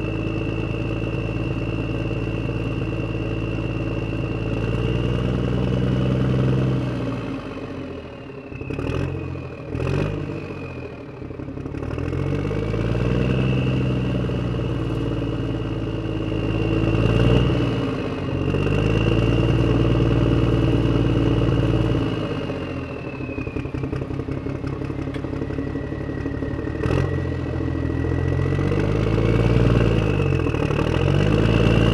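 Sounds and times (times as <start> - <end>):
motorcycle engine revving: 8.6 - 31.9.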